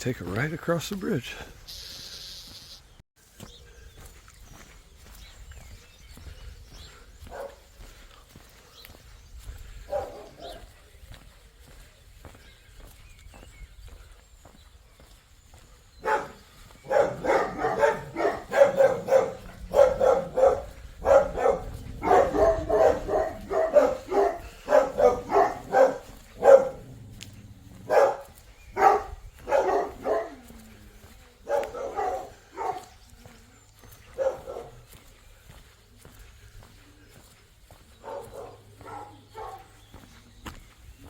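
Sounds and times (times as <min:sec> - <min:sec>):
dog barking loudly: 0:07.3 - 0:07.6, 0:09.9 - 0:10.7, 0:16.0 - 0:30.5, 0:31.4 - 0:33.0, 0:34.1 - 0:34.8, 0:38.0 - 0:39.8.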